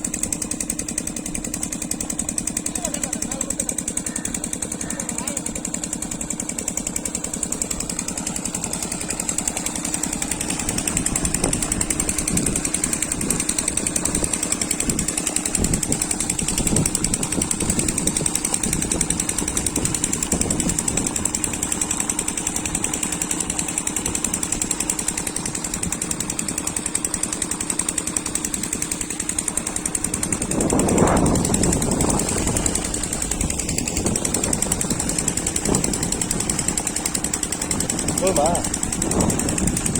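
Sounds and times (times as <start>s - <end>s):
diesel engine knocking: 0.0s - 39.9s
steady hum: 28.7s - 39.9s.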